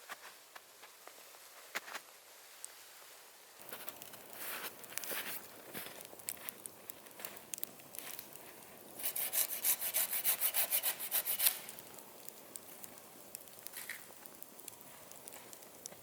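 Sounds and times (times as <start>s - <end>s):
fast rhythmic scraping: 9.0s - 11.7s.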